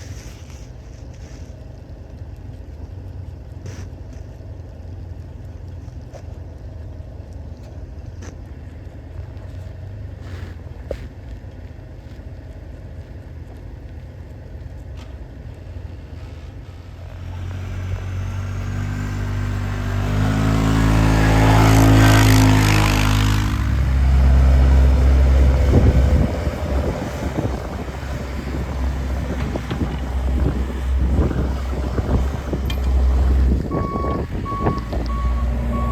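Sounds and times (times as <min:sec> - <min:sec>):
heavy truck engine passing: 0:16.0 - 0:35.9
rushing noise: 0:16.2 - 0:35.9.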